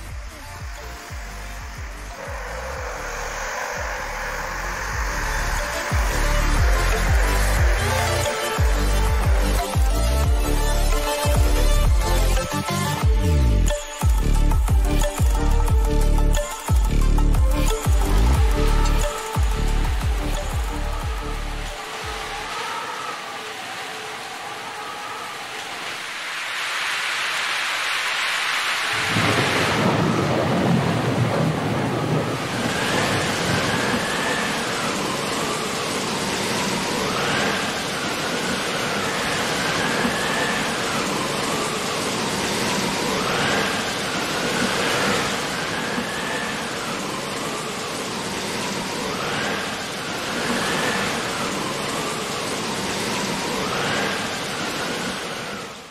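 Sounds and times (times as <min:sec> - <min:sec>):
heavy rain on windows: 0:00.0 - 0:12.3, 0:16.6 - 0:55.9
low rumble: 0:00.0 - 0:12.4
wavering whine: 0:00.0 - 0:55.9.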